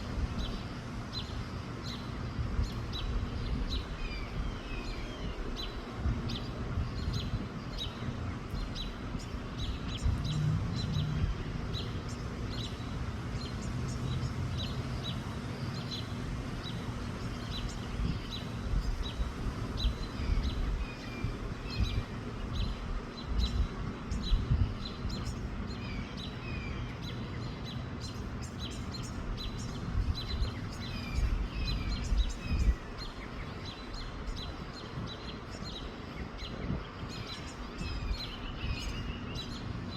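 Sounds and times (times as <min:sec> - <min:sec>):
small birds chirping: 0:00.0 - 0:39.9
wind rumble on microphone: 0:00.0 - 0:39.9.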